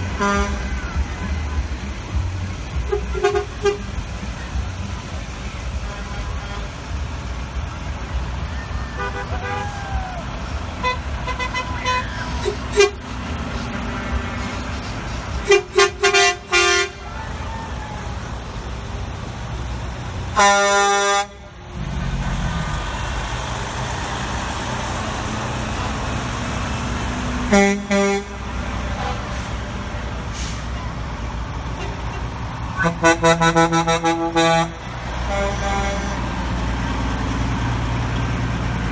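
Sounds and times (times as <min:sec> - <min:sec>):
truck horns tooting: 0:00.0 - 0:18.7, 0:20.3 - 0:21.6, 0:25.5 - 0:29.6, 0:31.7 - 0:38.9
rumble of passing engines: 0:00.0 - 0:38.9
air horn blast: 0:00.1 - 0:00.8, 0:02.8 - 0:04.2, 0:08.9 - 0:17.0, 0:20.4 - 0:21.4, 0:27.5 - 0:29.2, 0:32.8 - 0:36.3.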